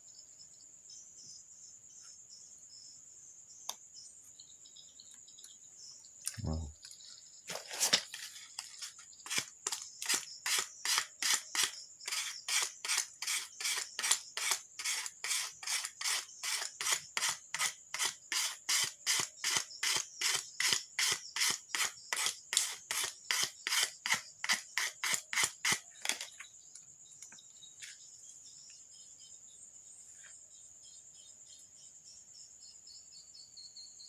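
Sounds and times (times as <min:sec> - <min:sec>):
hand tool filing in rasping strokes: 0:10.0 - 0:25.8.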